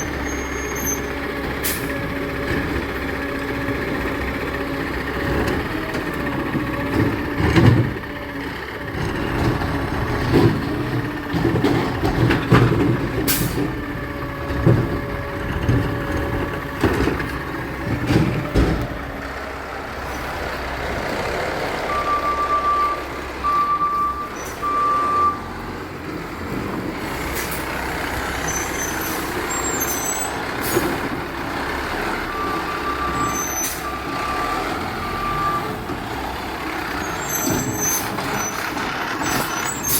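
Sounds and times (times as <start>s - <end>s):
diesel engine running: 0.0s - 39.9s
knocks and clunks: 5.2s - 8.1s, 8.8s - 19.4s
backup alarm beeping: 21.9s - 25.5s.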